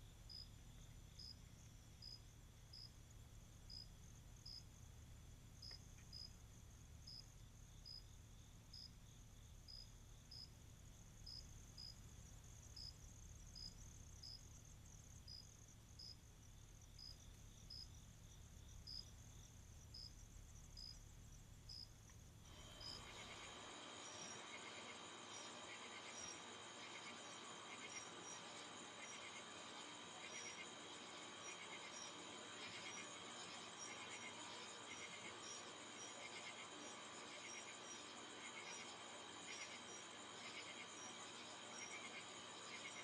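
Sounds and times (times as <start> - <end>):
insect high chirp: 0.0 - 43.0
high-pitched insect drone: 22.5 - 43.0.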